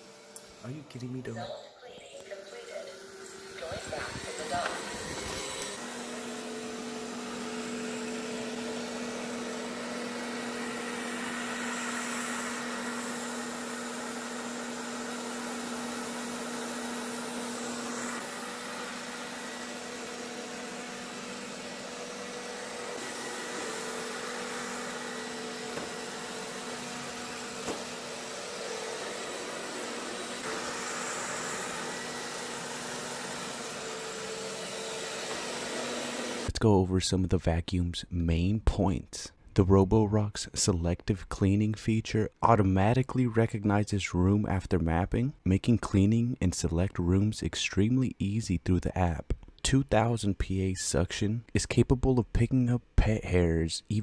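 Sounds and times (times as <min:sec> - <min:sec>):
robot vacuum whining: 0:01.4 - 0:36.6.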